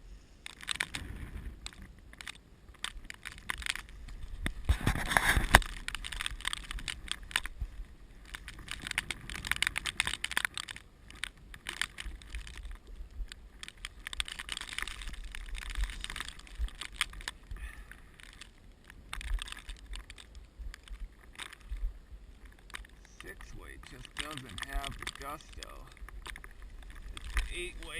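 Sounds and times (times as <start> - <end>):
fly reel clicking and ratcheting: 22.6 - 27.9.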